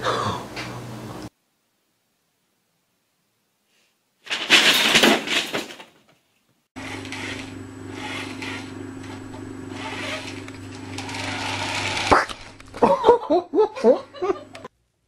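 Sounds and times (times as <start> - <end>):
toy car electric motor whirring: 6.8 - 12.6.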